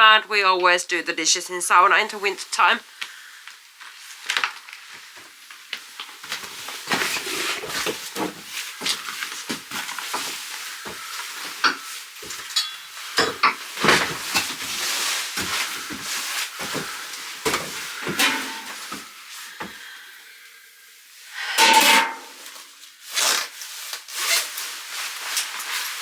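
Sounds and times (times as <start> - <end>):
dishes clattering: 10.9 - 14.6, 16.6 - 19.1, 21.4 - 22.4.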